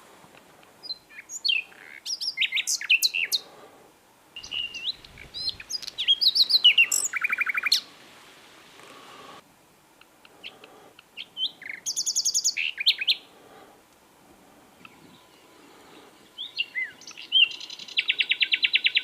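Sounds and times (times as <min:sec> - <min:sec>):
nightingale singing: 0:00.8 - 0:03.5, 0:04.4 - 0:08.0, 0:10.0 - 0:13.3, 0:14.8 - 0:19.0.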